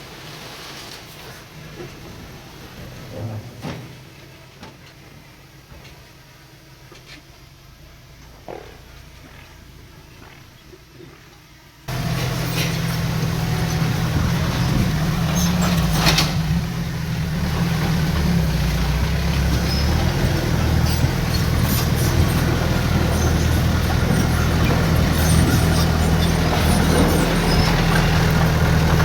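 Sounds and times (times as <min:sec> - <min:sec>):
diesel engine droning: 0:11.9 - 0:29.0.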